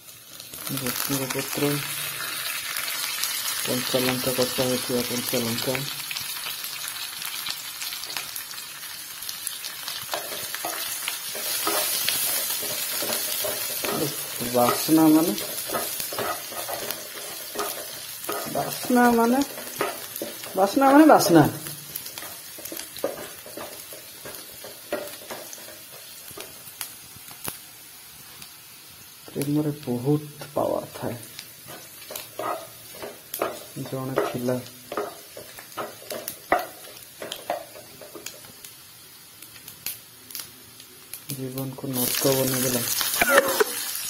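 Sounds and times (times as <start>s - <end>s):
spices sizzling in hot oil: 0.0s - 44.0s
wooden spatula scraping pan: 10.1s - 21.4s, 31.7s - 38.2s.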